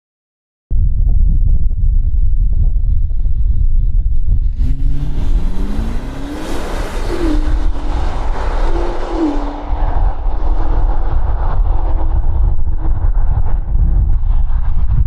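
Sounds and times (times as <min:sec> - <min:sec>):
car engine accelerating: 0:04.3 - 0:14.8.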